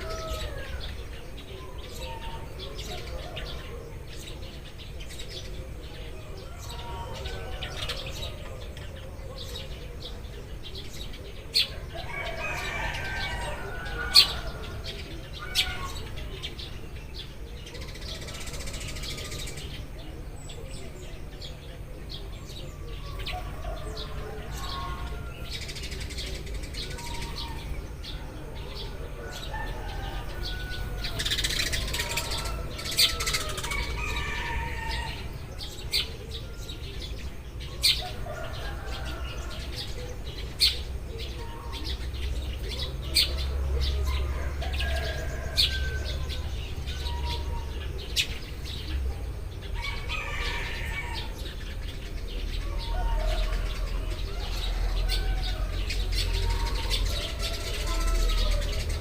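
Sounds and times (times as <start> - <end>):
sparrows chirping: 0.0 - 59.0.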